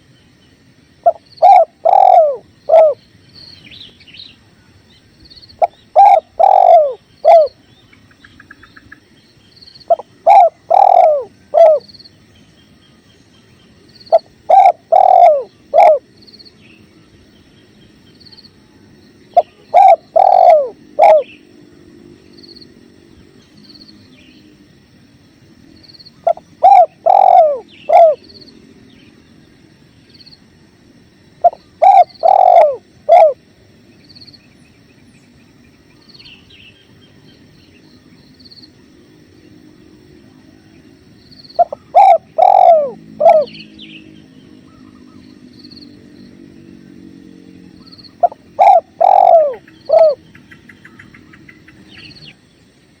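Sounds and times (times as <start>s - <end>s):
dove cooing: 1.0s - 3.0s, 5.6s - 7.6s, 9.9s - 11.9s, 14.1s - 16.1s, 19.3s - 21.4s, 26.2s - 28.4s, 31.4s - 33.4s, 41.6s - 45.4s, 47.6s - 51.8s.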